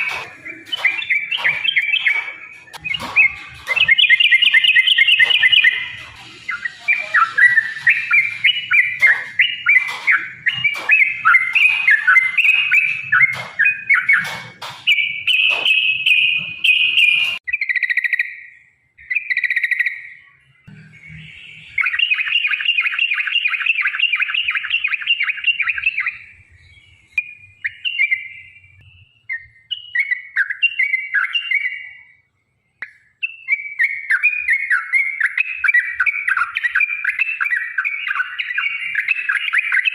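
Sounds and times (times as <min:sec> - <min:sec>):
bulbul singing chattering phrases: 0:00.0 - 0:18.5.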